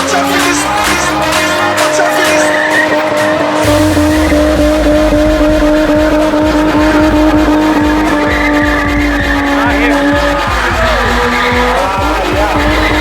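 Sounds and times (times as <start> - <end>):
car engine at high revs: 0.0 - 13.0
tyres squealing: 0.0 - 13.0
deep steady rumble: 3.5 - 13.0.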